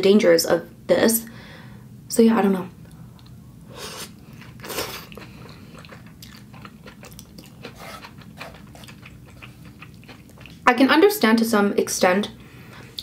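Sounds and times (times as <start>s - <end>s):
person chewing food: 3.2s - 10.6s.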